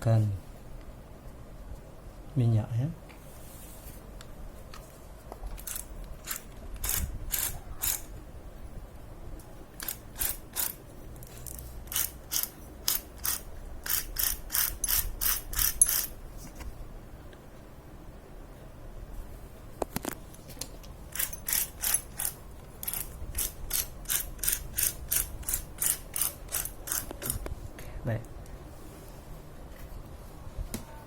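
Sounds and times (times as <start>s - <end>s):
freewheel ratchet clicking: 11.4s - 16.1s, 21.1s - 27.3s.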